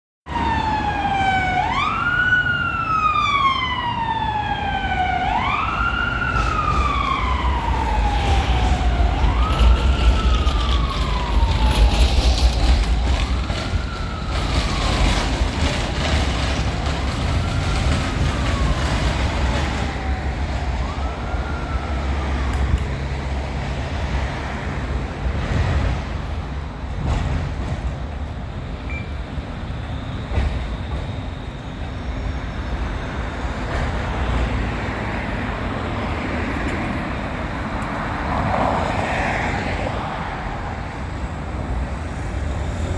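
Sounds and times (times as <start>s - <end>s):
emergency siren wailing: 0.3s - 25.3s
low traffic rumble: 0.3s - 42.9s.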